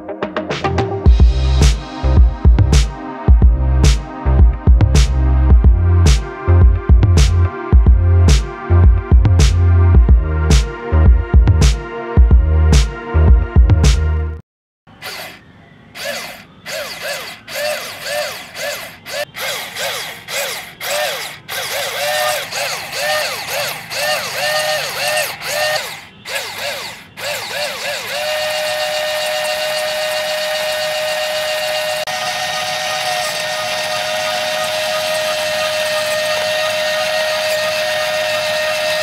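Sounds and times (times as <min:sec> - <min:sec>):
small electric motor whining: 0:14.9 - 0:39.0.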